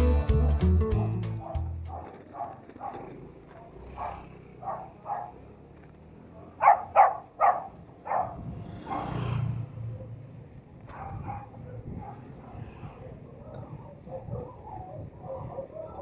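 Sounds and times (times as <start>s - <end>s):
dog barking: 0.4s - 5.4s, 6.3s - 9.3s, 10.9s - 12.6s, 13.4s - 16.0s.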